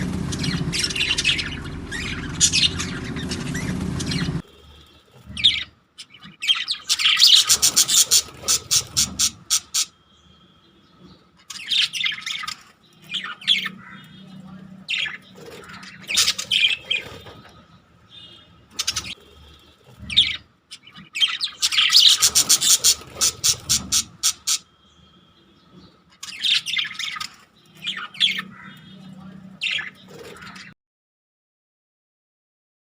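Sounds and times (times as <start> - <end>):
parrots squawking and chirping: 0.0 - 30.8.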